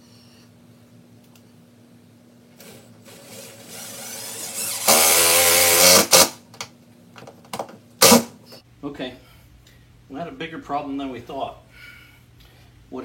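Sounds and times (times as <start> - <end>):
power drill driving screw: 2.6 - 6.4, 8.0 - 8.3.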